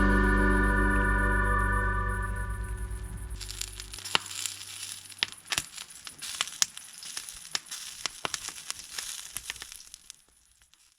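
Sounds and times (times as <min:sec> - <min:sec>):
faint hiss: 0:00.0 - 0:10.9
fire crackling and popping: 0:03.0 - 0:10.9.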